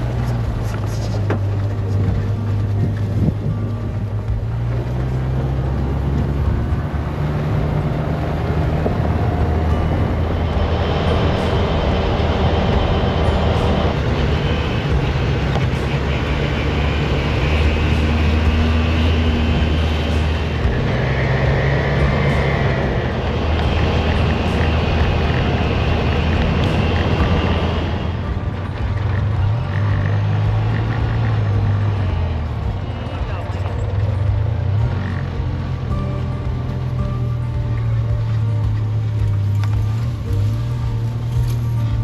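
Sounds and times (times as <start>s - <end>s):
utility vehicle engine running: 0.0s - 42.0s.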